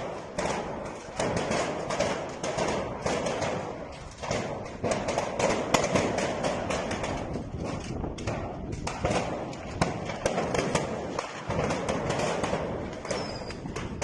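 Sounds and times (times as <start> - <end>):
fire rushing: 0.0 - 14.0
fireworks cracking and popping: 0.0 - 14.0.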